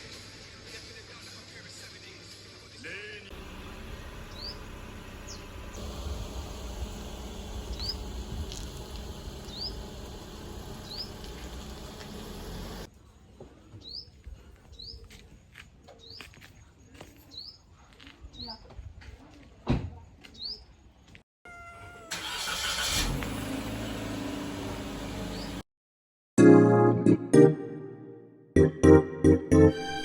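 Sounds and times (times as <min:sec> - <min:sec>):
small bird chirping: 0:04.0 - 0:05.8, 0:07.5 - 0:08.6, 0:09.4 - 0:09.9, 0:10.6 - 0:11.7.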